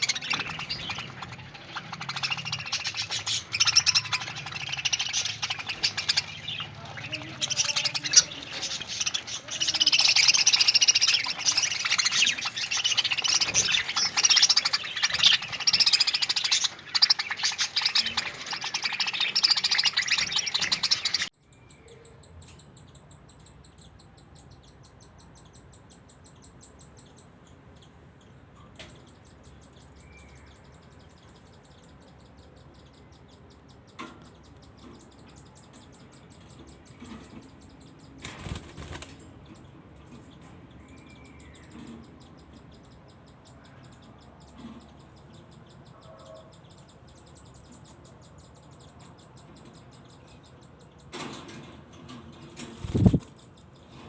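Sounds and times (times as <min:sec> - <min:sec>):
budgerigar chirps: 0:00.0 - 0:21.3
wings fluttering: 0:00.0 - 0:21.3, 0:38.2 - 0:39.3, 0:52.5 - 0:53.5.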